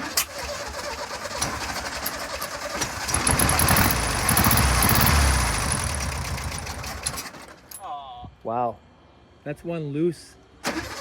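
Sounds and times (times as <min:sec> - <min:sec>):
air-cooled car engine running: 0:02.9 - 0:07.3.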